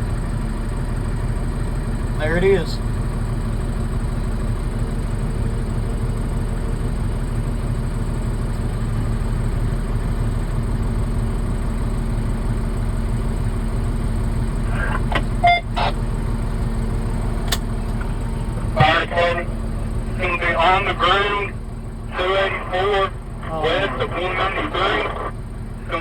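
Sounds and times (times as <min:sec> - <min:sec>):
vehicle engine idling: 0:00.0 - 0:26.0
radio-like blips: 0:14.6 - 0:16.1, 0:18.0 - 0:26.0.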